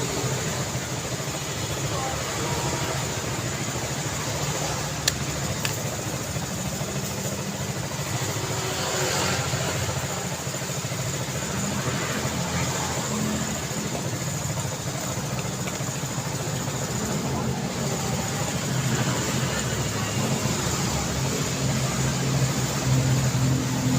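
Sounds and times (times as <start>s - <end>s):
road traffic rumble: 0.0s - 23.9s
sharp clicks: 5.0s - 5.9s.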